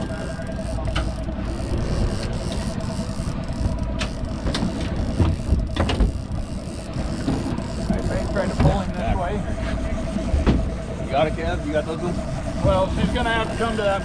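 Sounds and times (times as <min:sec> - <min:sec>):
boat motor rumbling: 0:00.0 - 0:14.0
sharp knocks and clicks: 0:00.6 - 0:09.1, 0:10.3 - 0:10.8.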